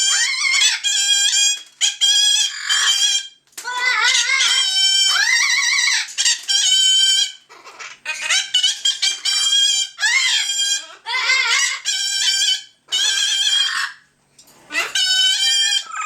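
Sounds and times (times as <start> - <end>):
parrot calling loudly: 0.0 - 14.1, 14.7 - 16.0.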